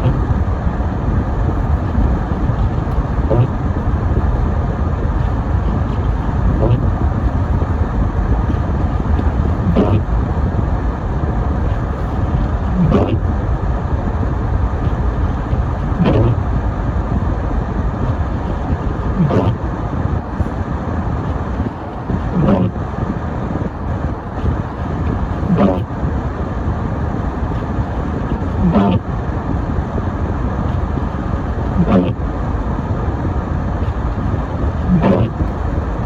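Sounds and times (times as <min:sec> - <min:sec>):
car road and engine rumble: 0:00.0 - 0:36.0
windshield wiper swish: 0:05.1 - 0:10.4, 0:11.0 - 0:13.3, 0:14.8 - 0:16.4, 0:19.2 - 0:19.6.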